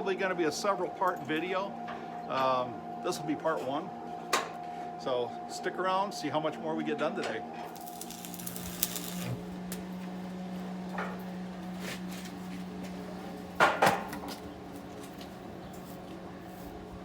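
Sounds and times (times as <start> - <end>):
steady low hum: 7.7 - 17.0.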